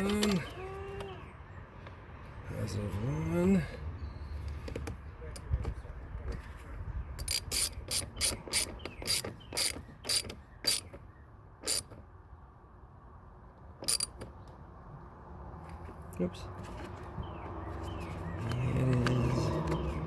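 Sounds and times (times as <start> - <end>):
ratchet wrench clicking: 7.2 - 10.9, 11.6 - 12.0, 13.8 - 14.2.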